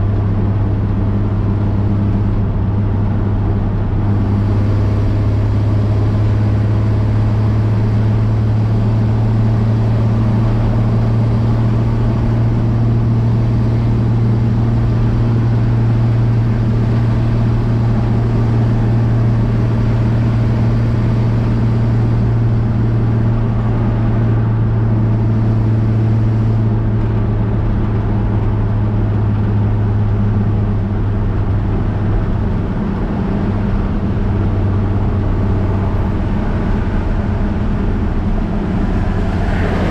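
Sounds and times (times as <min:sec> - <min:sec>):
truck engine droning while driving: 0:00.0 - 0:39.9.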